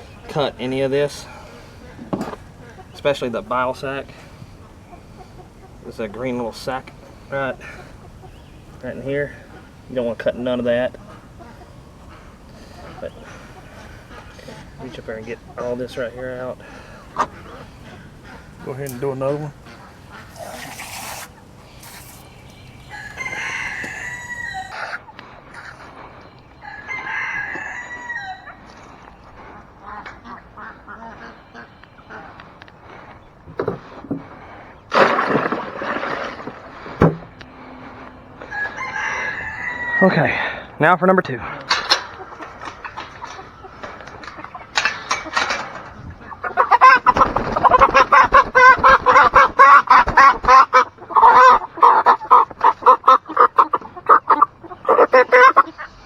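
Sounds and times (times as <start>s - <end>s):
chicken clucking and squawking: 0.0s - 32.6s, 37.6s - 40.8s, 42.0s - 56.0s
rooster crowing: 22.8s - 25.0s, 26.6s - 28.7s, 38.0s - 40.5s.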